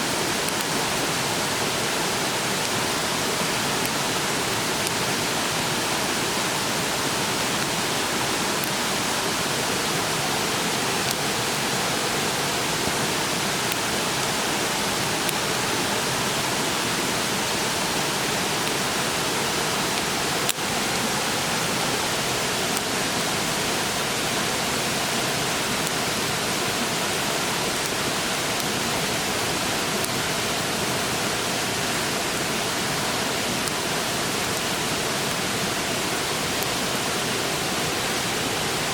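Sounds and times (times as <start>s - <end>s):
fast-flowing stream rushing: 0.0s - 38.9s
wood fire crack: 0.3s - 1.0s.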